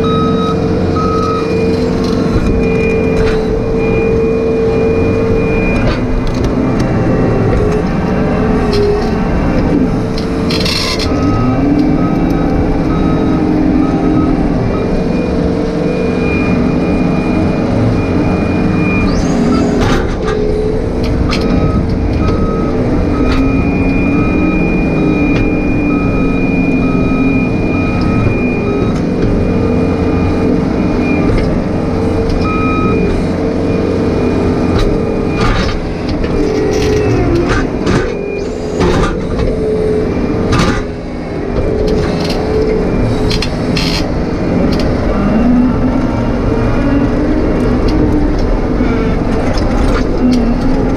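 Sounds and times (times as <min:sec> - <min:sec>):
excavator diesel engine under load: 0:00.0 - 0:50.9
travel alarm beeping: 0:00.0 - 0:50.9.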